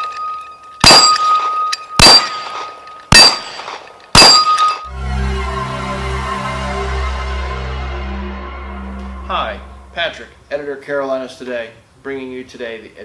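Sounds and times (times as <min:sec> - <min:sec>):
rifle shots hitting steel gong: 0:00.8 - 0:04.8.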